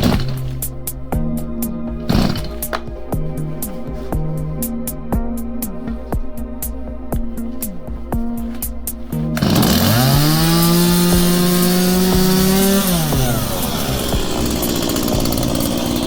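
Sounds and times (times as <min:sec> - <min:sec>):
chainsaw starting and revving: 0:00.0 - 0:00.6, 0:02.0 - 0:02.9, 0:09.4 - 0:16.0.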